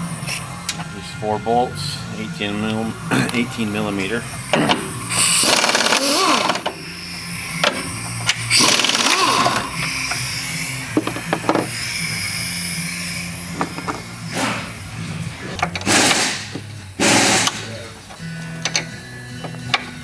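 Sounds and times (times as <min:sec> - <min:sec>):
pneumatic impact wrench bursts: 0:03.3 - 0:18.0
metal tools clanking: 0:13.5 - 0:20.0.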